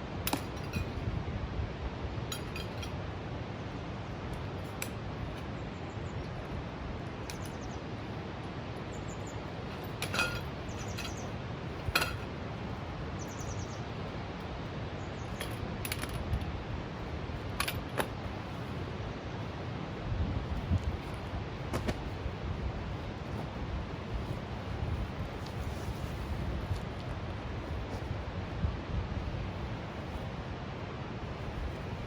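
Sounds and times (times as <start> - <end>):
light metallic clinks: 0.2 - 1.0, 2.3 - 3.0, 7.2 - 7.7, 9.7 - 12.3, 15.3 - 16.4.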